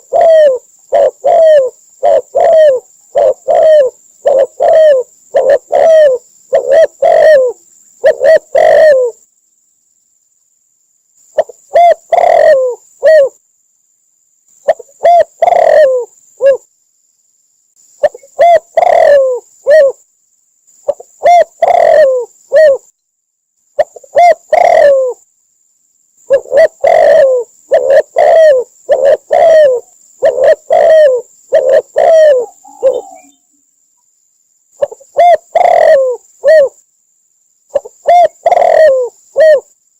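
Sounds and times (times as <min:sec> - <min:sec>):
dove cooing: 0:00.0 - 0:09.2, 0:11.4 - 0:13.4, 0:14.6 - 0:16.7, 0:18.0 - 0:20.0, 0:20.8 - 0:22.9, 0:23.8 - 0:25.2, 0:26.3 - 0:33.5, 0:34.8 - 0:36.8, 0:37.7 - 0:39.7.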